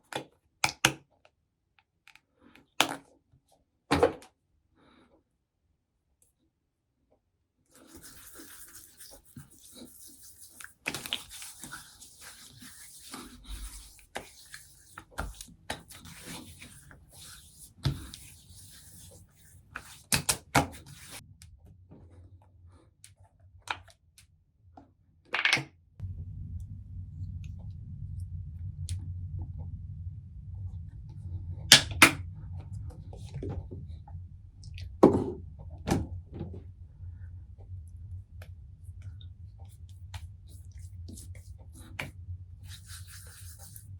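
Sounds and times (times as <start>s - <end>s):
rustling and rubbing: 7.8s - 21.2s, 40.4s - 43.9s
steady low hum: 25.9s - 43.9s.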